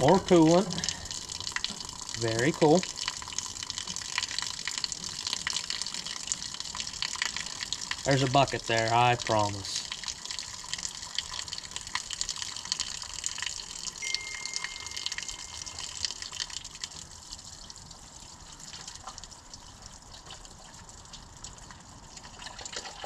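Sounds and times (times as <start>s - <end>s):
coolant splashing into bucket: 16.1s - 23.0s.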